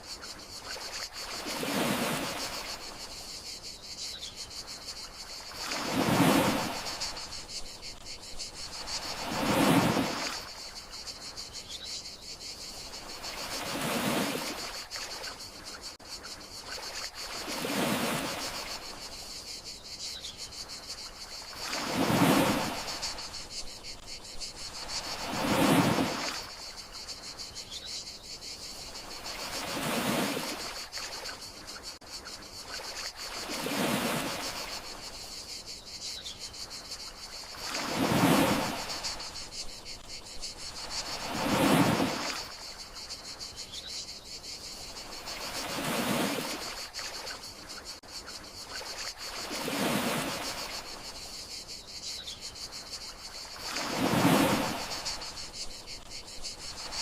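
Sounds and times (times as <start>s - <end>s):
crickets chirring: 0.0s - 57.0s
sea waves washing in: 0.6s - 3.2s, 5.0s - 10.9s, 13.0s - 15.1s, 16.8s - 19.2s, 21.5s - 24.0s, 24.6s - 26.8s, 29.1s - 31.4s, 32.8s - 35.2s, 37.4s - 40.0s, 40.7s - 43.0s, 44.8s - 47.4s, 49.1s - 51.1s, 53.5s - 55.6s.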